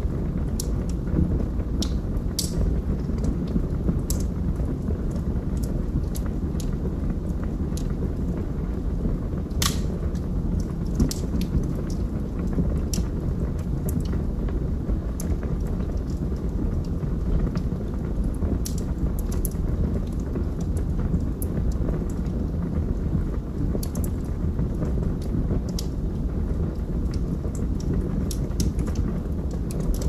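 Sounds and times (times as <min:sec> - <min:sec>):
logs crackling and popping: 0:00.0 - 0:30.0
low rumble of flames: 0:00.0 - 0:30.0.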